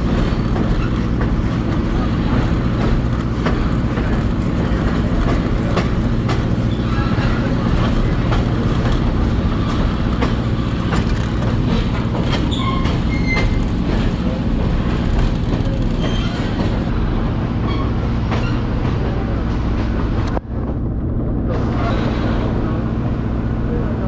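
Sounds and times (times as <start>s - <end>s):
wheel squeals: 0.0s - 16.9s
wheels clicking over rail joints: 0.0s - 16.9s
train cars rumbling on track: 0.0s - 24.0s.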